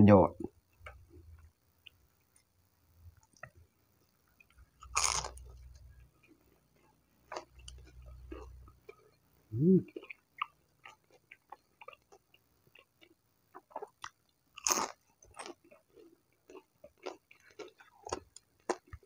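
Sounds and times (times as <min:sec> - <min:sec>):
chewing with wet clicks: 0:00.7 - 0:02.5, 0:03.1 - 0:09.2, 0:09.9 - 0:19.0
crunchy bite: 0:04.8 - 0:05.8, 0:13.6 - 0:15.6
person humming: 0:09.5 - 0:09.9.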